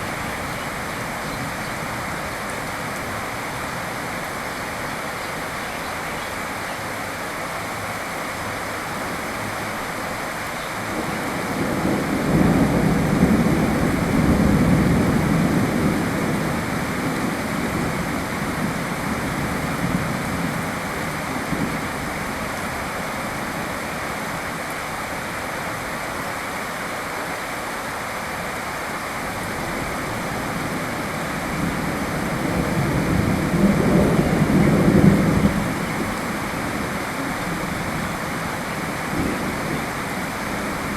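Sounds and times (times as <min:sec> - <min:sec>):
heavy rain: 0:00.0 - 0:40.9
thunder rumbling: 0:10.8 - 0:22.2, 0:29.4 - 0:40.9.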